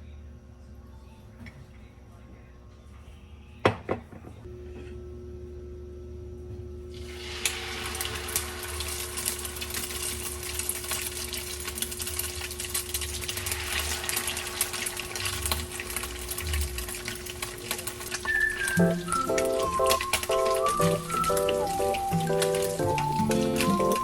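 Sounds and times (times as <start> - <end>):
tap water running into sink: 7.1 - 24.0.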